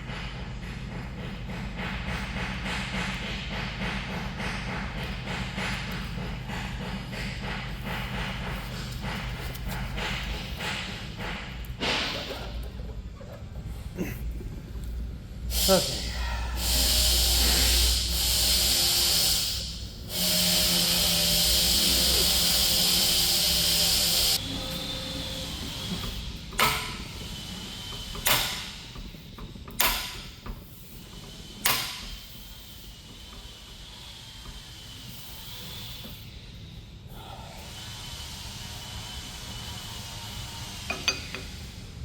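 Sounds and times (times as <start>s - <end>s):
loud steady hiss: 15.5s - 25.5s.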